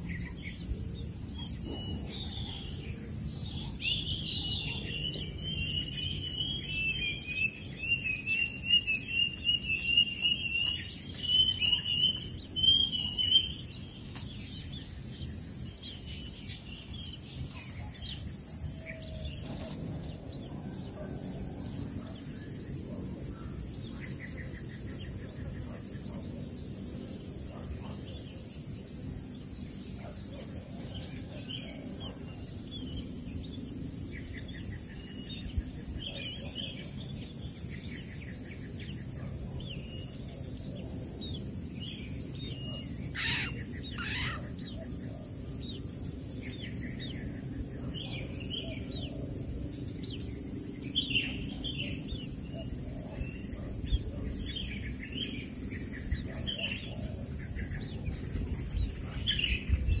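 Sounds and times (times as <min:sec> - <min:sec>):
loud bird calls: 0:00.0 - 0:28.5, 0:34.2 - 1:00.0
birds chirping: 0:00.0 - 0:28.7, 0:41.0 - 0:49.2
high-pitched insect drone: 0:00.0 - 1:00.0.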